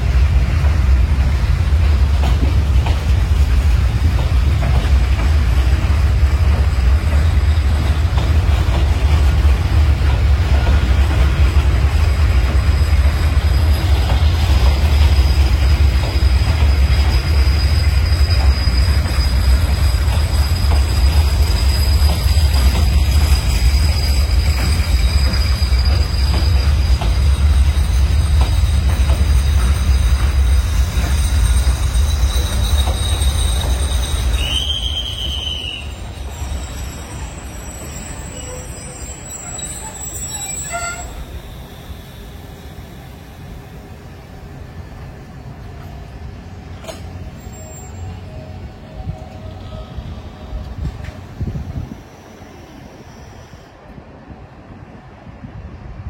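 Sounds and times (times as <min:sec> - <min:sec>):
high squealing tones: 0:16.6 - 0:42.2.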